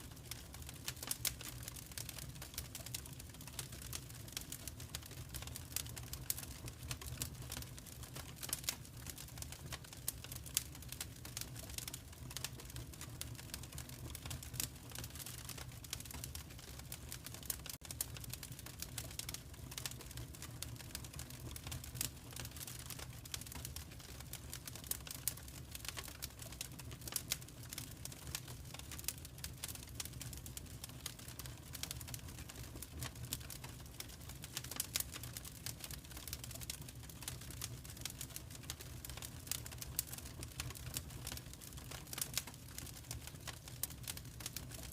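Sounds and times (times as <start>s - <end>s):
fireplace fire crackling: 0.0s - 44.9s.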